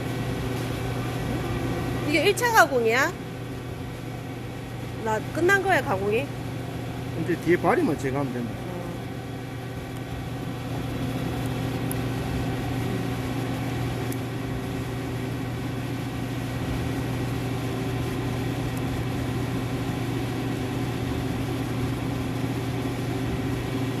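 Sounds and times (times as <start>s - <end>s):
cnc machine humming: 0.0s - 15.6s.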